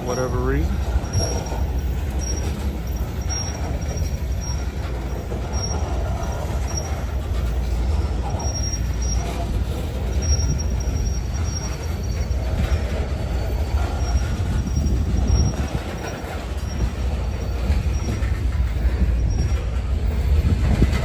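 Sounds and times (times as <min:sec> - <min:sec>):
freight train cars rumbling: 0:00.0 - 0:21.0
high-pitched wheel squeal: 0:00.0 - 0:21.0.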